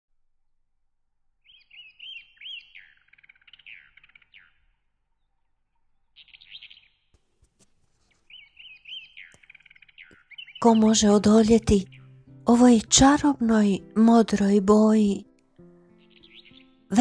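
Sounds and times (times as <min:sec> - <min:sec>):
songbird singing: 0:01.4 - 0:07.2, 0:08.1 - 0:17.0.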